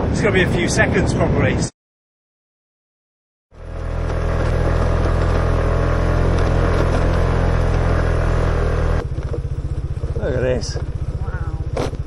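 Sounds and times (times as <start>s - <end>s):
road and wind noise: 0.0s - 1.7s, 3.6s - 12.0s
motor scooter running: 3.6s - 12.0s.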